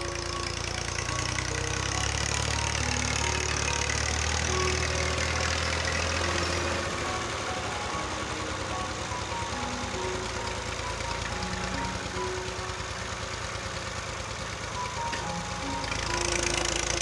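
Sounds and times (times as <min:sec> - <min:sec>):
background music: 0:00.0 - 0:17.0
tractor diesel engine running: 0:00.0 - 0:17.0.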